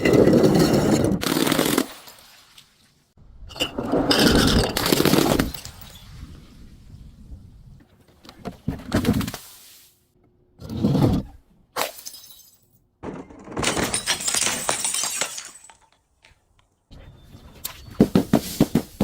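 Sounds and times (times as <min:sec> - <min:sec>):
glass crashing: 0:11.9 - 0:15.9
glass crunching and crackling: 0:13.6 - 0:16.1.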